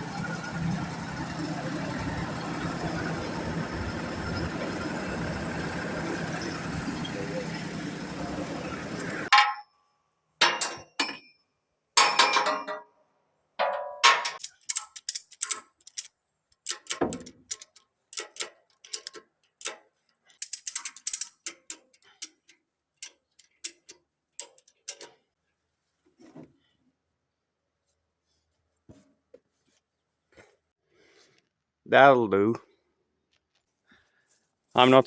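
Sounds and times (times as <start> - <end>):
metallic clicks and ratcheting: 13.6 - 25.2.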